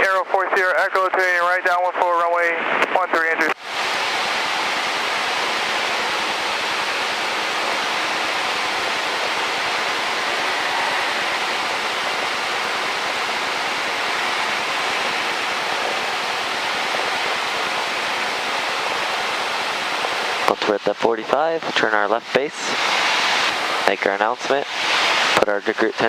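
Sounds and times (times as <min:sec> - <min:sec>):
aircraft cockpit rushing hiss: 0:07.1 - 0:16.0, 0:20.4 - 0:26.0.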